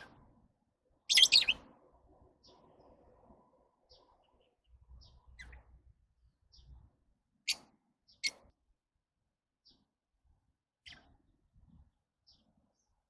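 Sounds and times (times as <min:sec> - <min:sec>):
lovebirds chirping: 0:00.0 - 0:08.6, 0:10.8 - 0:11.3, 0:12.1 - 0:13.0.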